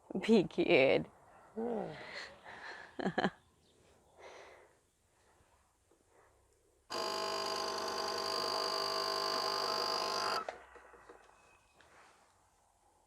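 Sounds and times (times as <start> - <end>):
coffee machine pump buzzing: 6.9 - 10.5.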